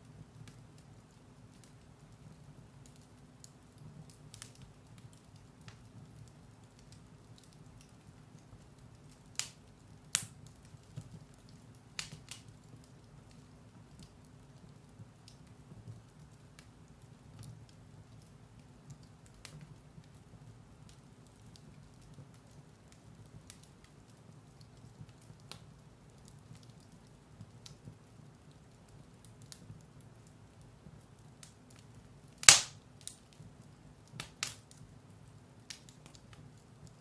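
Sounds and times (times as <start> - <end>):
firewood crackling: 0.0 - 37.0
loud sharp crack: 32.4 - 32.8.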